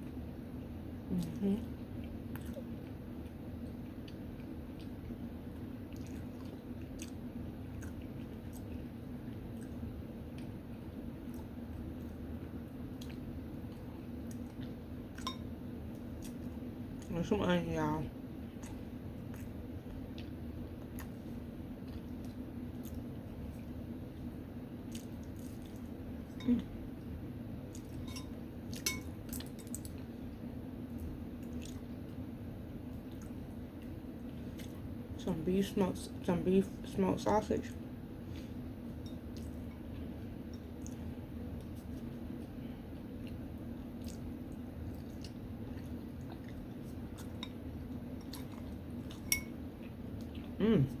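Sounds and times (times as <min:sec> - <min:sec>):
steady low hum: 0:00.0 - 0:51.0
close-up chewing: 0:18.5 - 0:25.9, 0:39.2 - 0:51.0
utensil clink with ring: 0:28.0 - 0:29.1.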